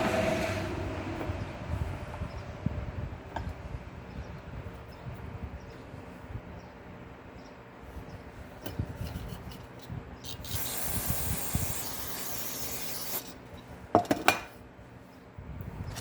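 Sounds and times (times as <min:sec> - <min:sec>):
steady hiss: 0:10.3 - 0:13.4.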